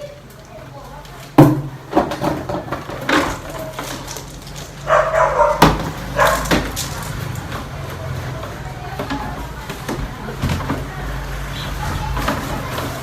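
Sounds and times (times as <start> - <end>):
dog barking: 4.8 - 6.7.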